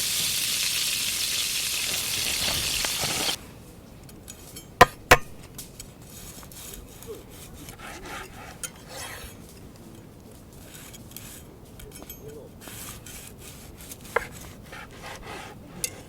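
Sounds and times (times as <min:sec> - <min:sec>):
objects scraping on wood: 0:01.8 - 0:03.4, 0:05.2 - 0:09.8, 0:12.6 - 0:16.0
sharp knocks: 0:04.8 - 0:05.5.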